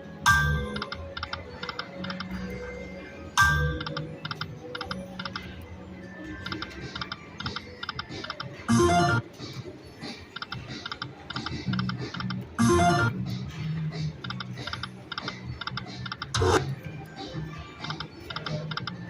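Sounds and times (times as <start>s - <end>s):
slot machine chime: 0.2s - 9.4s, 12.6s - 13.2s
slot machine ringing tone: 0.2s - 9.4s, 12.6s - 13.2s.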